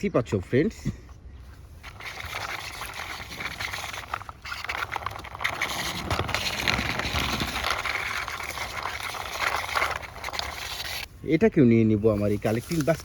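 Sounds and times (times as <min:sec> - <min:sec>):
leaves and brush rustling: 0:00.4 - 0:13.0.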